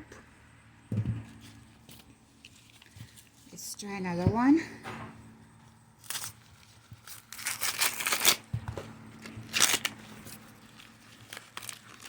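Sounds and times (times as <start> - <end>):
corn husk ripping and rustling: 6.0 - 8.5, 9.2 - 12.0.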